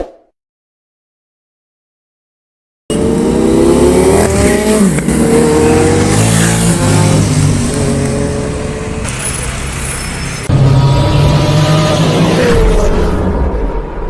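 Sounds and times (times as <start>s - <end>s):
motorbike engine revving: 2.9s - 12.5s.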